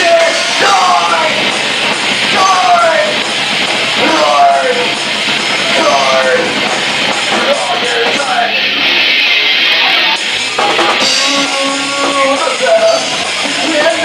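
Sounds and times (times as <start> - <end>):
distorted electric guitar: 0.0 - 14.0
rock band playing: 0.0 - 14.0
person singing: 4.0 - 4.9, 5.7 - 6.6, 11.0 - 14.0.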